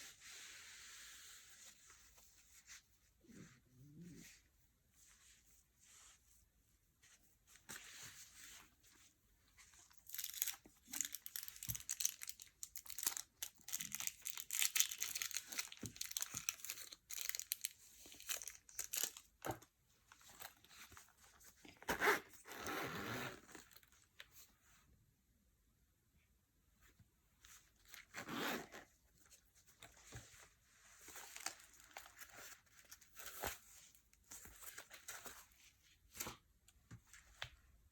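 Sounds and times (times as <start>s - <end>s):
packaging crinkling and tearing: 10.0s - 19.3s.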